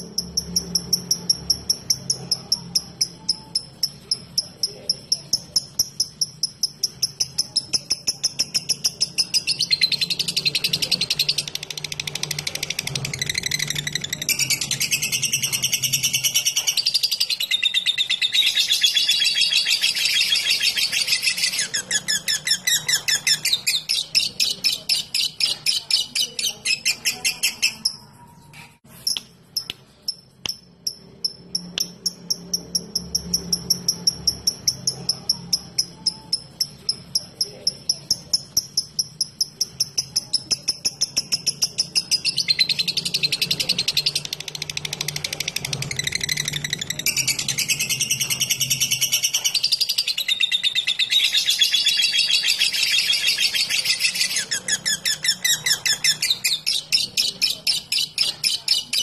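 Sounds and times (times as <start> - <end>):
lovebird chattering: 0.0 - 59.0
lovebird ticking notes: 29.1 - 42.3.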